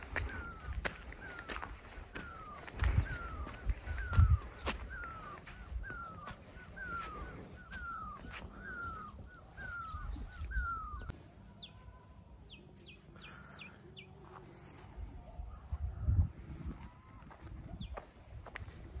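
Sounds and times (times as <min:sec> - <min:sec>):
high falling chirps: 0:00.0 - 0:11.1.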